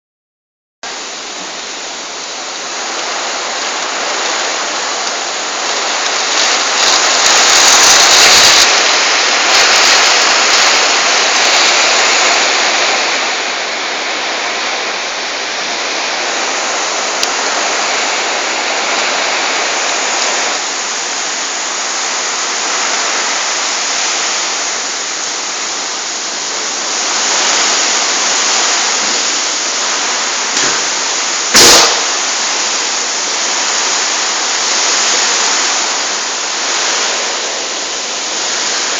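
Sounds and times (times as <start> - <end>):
storm wind blowing hard: 0.9 - 38.9.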